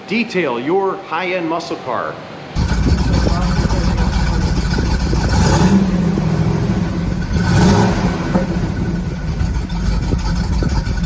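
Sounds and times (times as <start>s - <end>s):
car engine rumbling: 2.6s - 11.0s.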